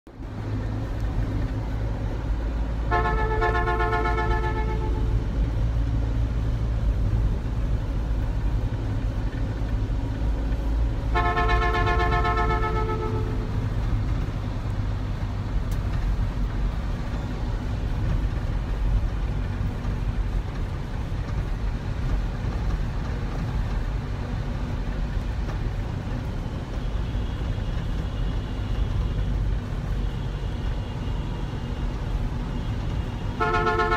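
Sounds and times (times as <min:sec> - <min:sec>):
vehicle rumble on road: 0:00.1 - 0:33.9
horn blasts: 0:02.9 - 0:05.3, 0:11.1 - 0:13.6, 0:33.3 - 0:33.9.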